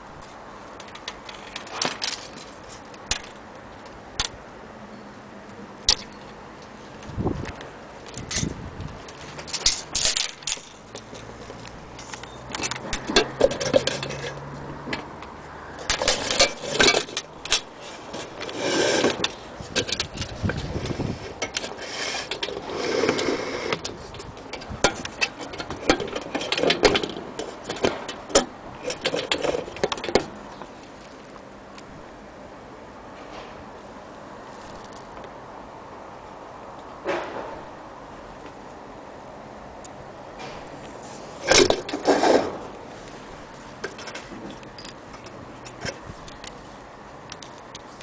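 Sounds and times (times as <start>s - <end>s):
metal parts clinking and rattling: 0.8s - 4.3s, 8.0s - 14.4s, 15.8s - 30.4s, 41.4s - 42.5s, 43.8s - 46.5s.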